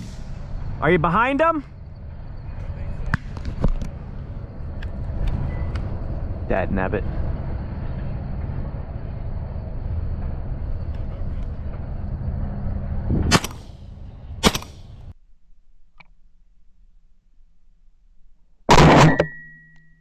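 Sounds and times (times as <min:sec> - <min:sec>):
shotgun shots: 0:00.0 - 0:00.4, 0:13.2 - 0:13.8, 0:14.4 - 0:14.9, 0:18.7 - 0:19.3
low rumble: 0:00.0 - 0:15.2.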